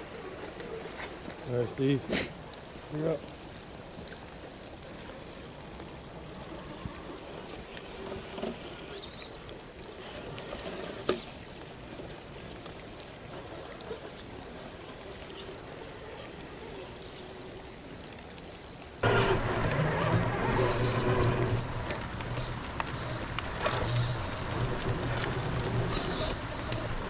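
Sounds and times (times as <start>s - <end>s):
water trickling: 0.0s - 27.0s
loud noise with low hum: 19.0s - 27.0s.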